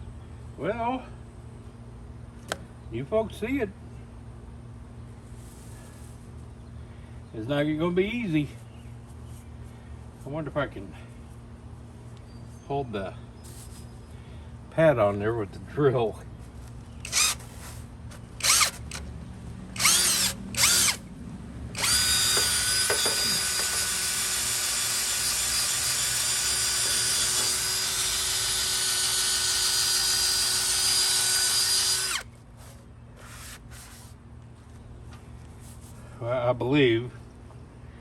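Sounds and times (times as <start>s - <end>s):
power drill scrubbing sink: 21.8s - 32.2s.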